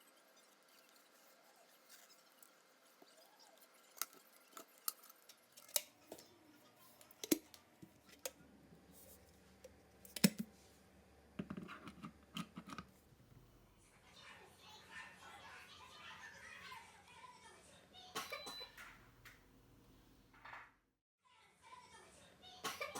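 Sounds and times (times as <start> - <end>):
kettle and packaging clicks: 3.9 - 6.2, 7.0 - 8.4, 9.6 - 10.5.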